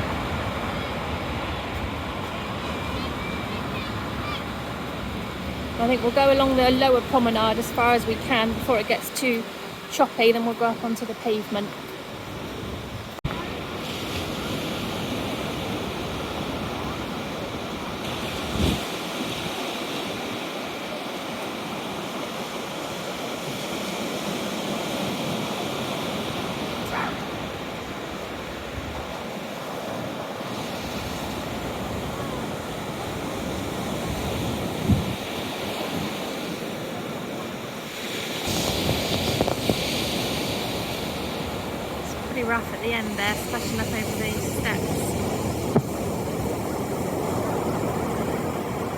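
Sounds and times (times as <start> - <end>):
sea waves breaking against a wall: 0.0 - 48.9
waves splashing over steps: 0.0 - 48.9
wind on microphone: 12.2 - 20.5, 25.0 - 48.9.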